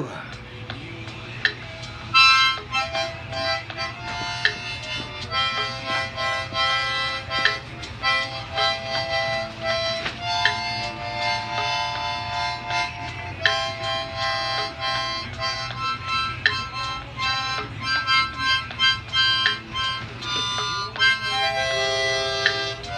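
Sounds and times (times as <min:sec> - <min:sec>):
steady low hum: 0:00.0 - 0:22.9
harmonica playing a tune: 0:00.4 - 0:22.9.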